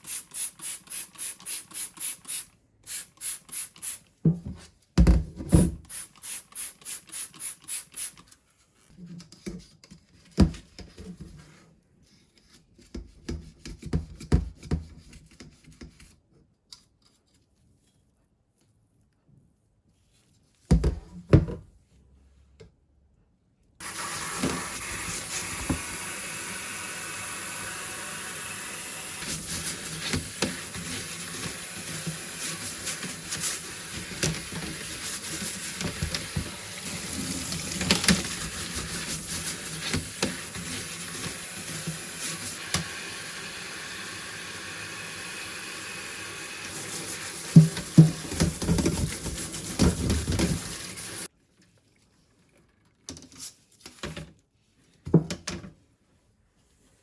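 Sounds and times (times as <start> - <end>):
tap running into sink: 23.8 - 26.1, 47.3 - 51.3.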